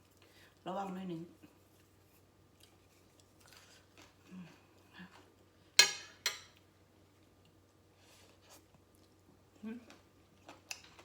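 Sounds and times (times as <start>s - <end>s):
faint chewing: 1.3s - 5.5s, 6.6s - 11.0s.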